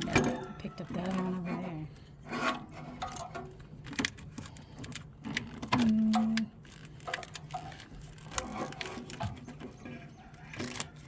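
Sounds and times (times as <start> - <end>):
tools and metal parts clinking: 2.3 - 11.0.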